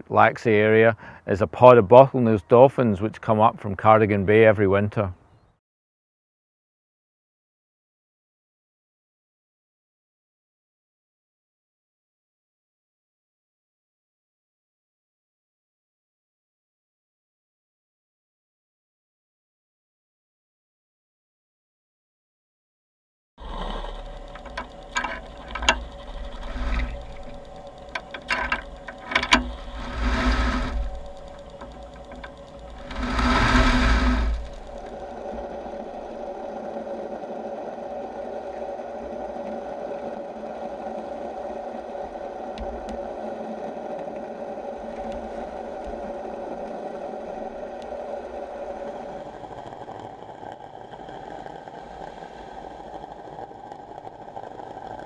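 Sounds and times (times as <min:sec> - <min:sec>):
motor humming with whine: 0:23.4 - 0:55.0.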